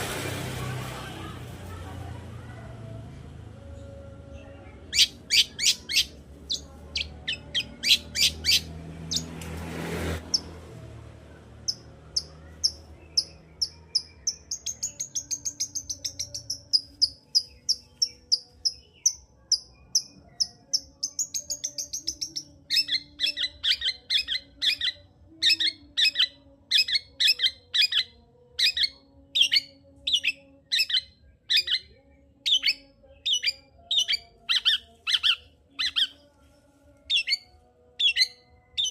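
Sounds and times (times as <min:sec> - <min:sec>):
shrike singing: 0:03.6 - 0:09.4, 0:11.5 - 0:38.9.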